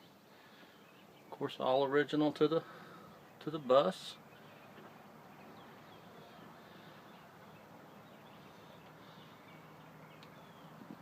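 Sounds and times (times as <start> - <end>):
faint outdoor background hiss: 0.0 - 11.0
faint bird chirps: 3.0 - 11.0.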